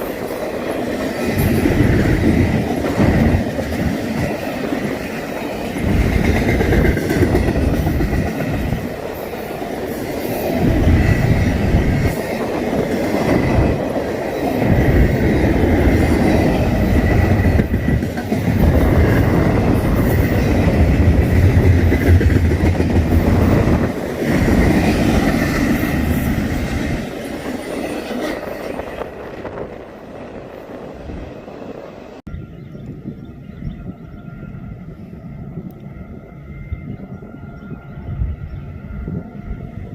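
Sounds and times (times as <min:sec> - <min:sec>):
train wheels clacking on rails: 0:00.0 - 0:29.8
train rumble: 0:00.0 - 0:39.9.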